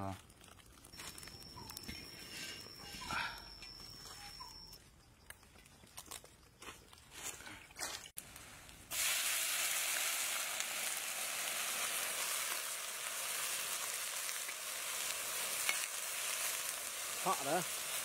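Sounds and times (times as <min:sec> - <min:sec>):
food sizzling in hot oil: 0:08.9 - 0:18.0.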